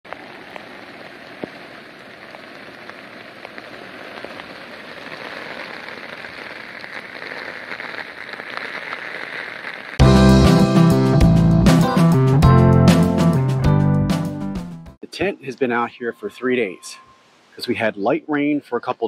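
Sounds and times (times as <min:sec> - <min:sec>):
rain on tent fabric: 0:00.0 - 0:10.0.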